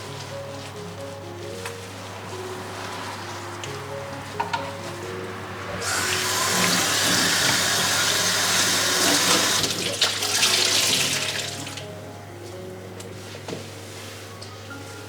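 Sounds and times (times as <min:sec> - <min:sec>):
tap water running into sink: 0:05.8 - 0:11.8.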